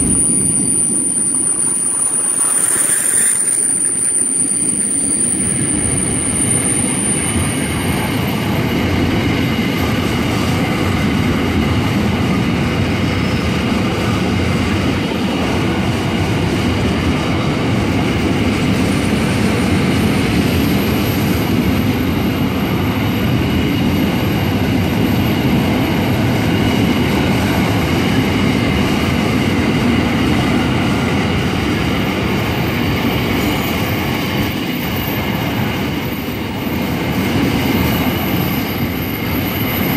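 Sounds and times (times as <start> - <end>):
high wheel squeal: 0.0 - 8.4
freight train wheels rumbling: 0.0 - 39.9.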